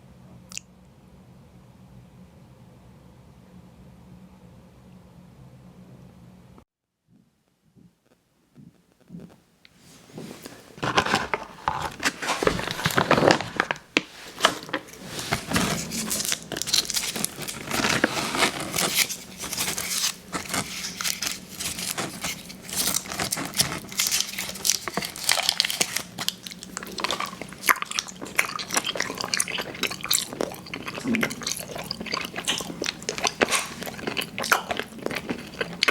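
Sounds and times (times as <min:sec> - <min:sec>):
crackling chewing mouth sounds: 0:10.8 - 0:35.9.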